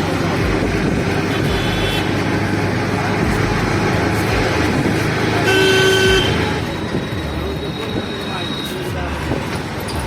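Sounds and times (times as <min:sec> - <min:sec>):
road traffic noise: 0:00.0 - 0:10.0
vehicle horn honking: 0:01.3 - 0:02.2, 0:05.4 - 0:06.6.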